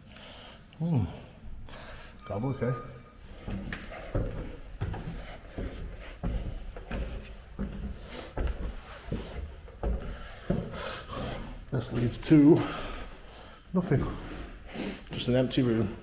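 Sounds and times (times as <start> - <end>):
footsteps walking: 3.2 - 16.0
footsteps scuffing: 3.3 - 12.4.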